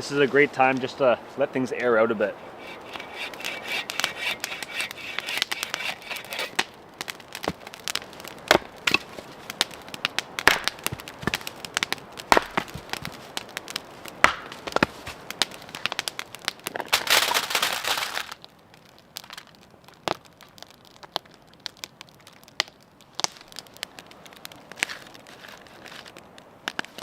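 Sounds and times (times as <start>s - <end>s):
axe splitting firewood: 2.4s - 13.4s, 14.2s - 17.2s
wood snaps and cracks: 2.6s - 27.0s.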